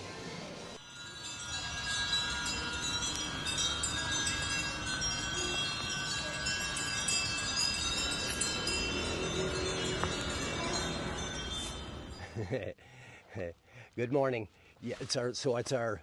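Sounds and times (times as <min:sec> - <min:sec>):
wind chimes ringing: 0:00.8 - 0:12.7.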